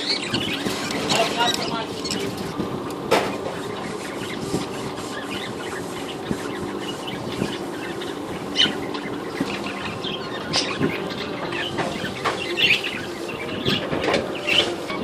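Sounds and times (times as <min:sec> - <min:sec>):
budgerigars chirping: 0:00.0 - 0:02.5, 0:03.4 - 0:15.0.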